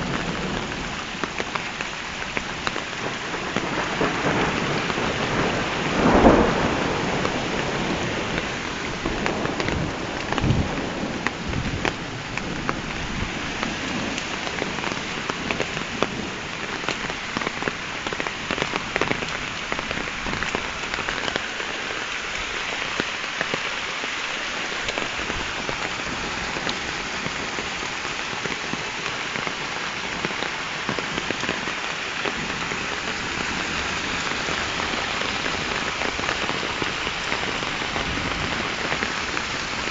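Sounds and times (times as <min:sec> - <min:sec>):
heavy rain on hard surfaces: 0:00.0 - 0:39.9
low rumble of thunder: 0:02.9 - 0:17.6.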